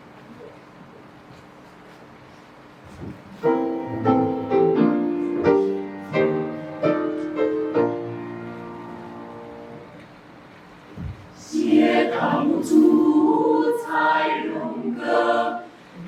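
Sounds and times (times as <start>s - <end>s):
piano chords: 3.4s - 10.0s
choir singing: 11.4s - 16.0s.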